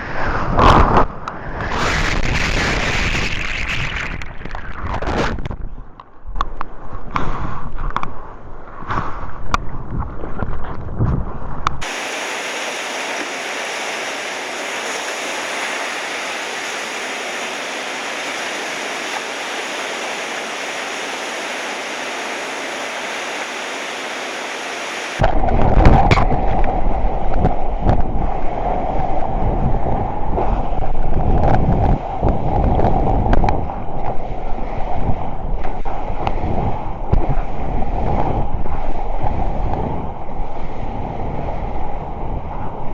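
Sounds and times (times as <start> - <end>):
wind buffeting microphone: 0.0 - 42.9
steady even hiss: 11.8 - 25.2
ocean surf: 11.8 - 30.8.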